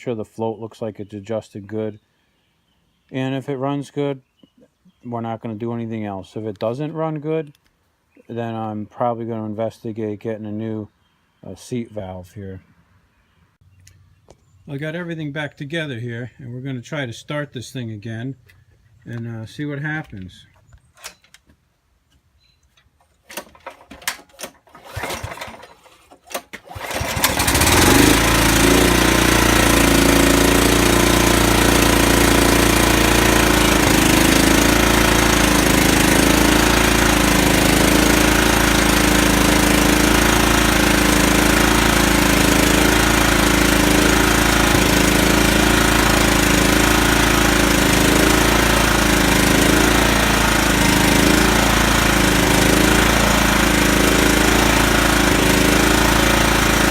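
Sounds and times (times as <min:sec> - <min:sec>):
engine cranking: 0:23.0 - 0:56.9
engine running steadily: 0:26.7 - 0:56.9.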